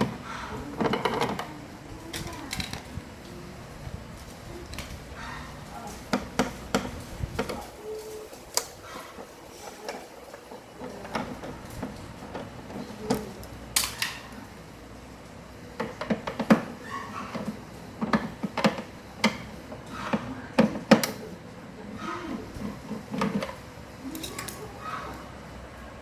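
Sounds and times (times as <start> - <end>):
hands and tools clicking on plastic: 15.8 - 21.3.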